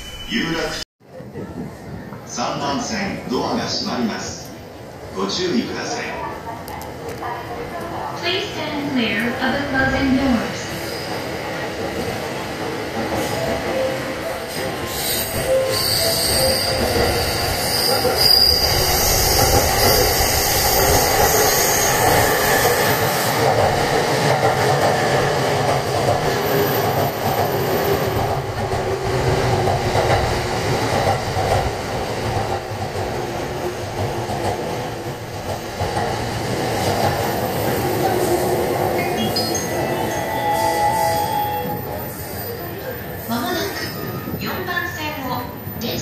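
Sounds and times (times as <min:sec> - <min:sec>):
train wheels rumbling on rail: 0:06.6 - 0:46.0
high wheel squeal: 0:14.9 - 0:22.9.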